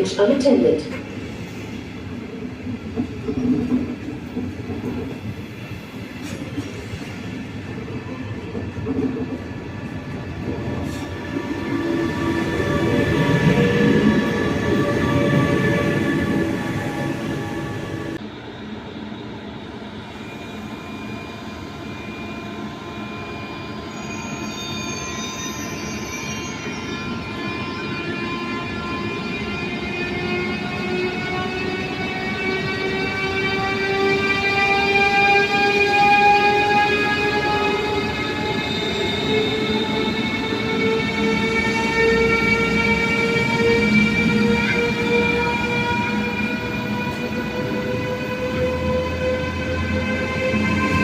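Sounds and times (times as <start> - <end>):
train wheels rumbling on rails: 0.0 - 18.2.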